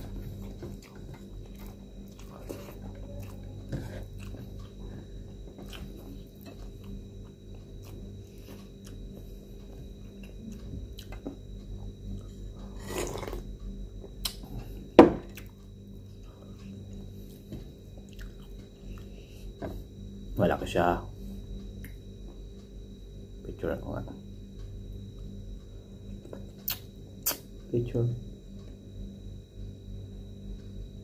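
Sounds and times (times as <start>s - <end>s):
person chewing food: 0.0s - 19.8s
faint steady hum: 0.0s - 31.0s.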